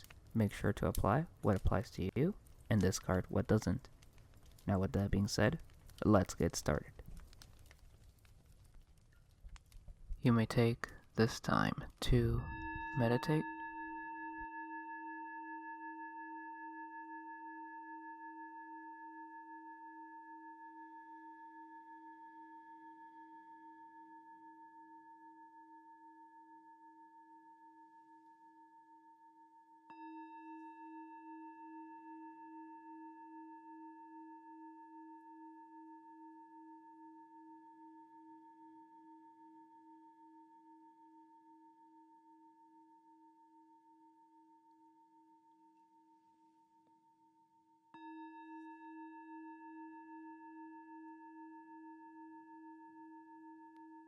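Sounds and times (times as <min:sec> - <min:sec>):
singing bowl ringing: 0:12.3 - 0:54.0.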